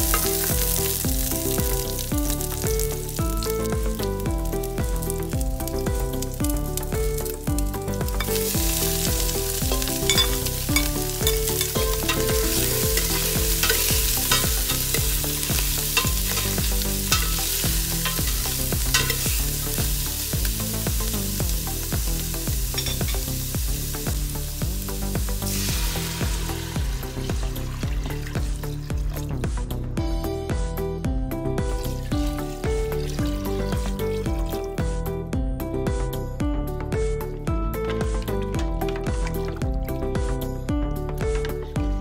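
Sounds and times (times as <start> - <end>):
water pouring into pot: 0.0 - 4.2, 4.9 - 24.7, 25.3 - 29.4, 31.8 - 34.6
meat sizzling in a pot: 0.0 - 29.6, 31.7 - 35.0
background music with beat: 0.0 - 42.0.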